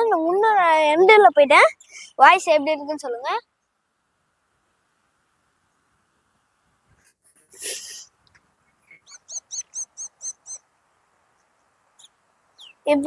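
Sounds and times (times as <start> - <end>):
bird chirping: 1.3 - 2.3, 8.6 - 13.0.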